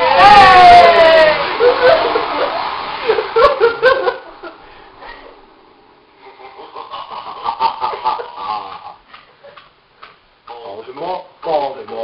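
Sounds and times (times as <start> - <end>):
group of people laughing: 1.3 - 5.3, 6.2 - 9.6.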